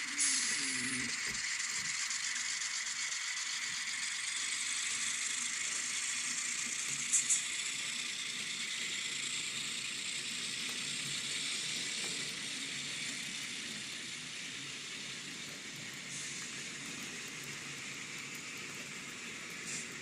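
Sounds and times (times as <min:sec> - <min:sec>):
diesel engine sound from small speaker: 0:00.0 - 0:01.6
model train wheels hissing on track: 0:00.0 - 0:20.0.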